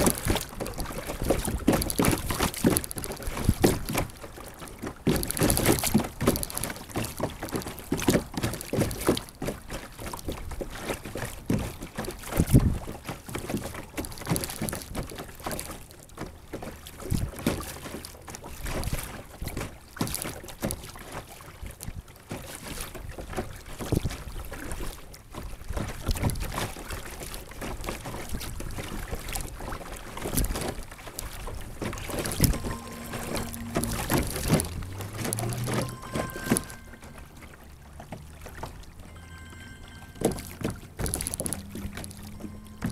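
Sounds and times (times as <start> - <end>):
water splashing against hull: 0.0 - 42.9.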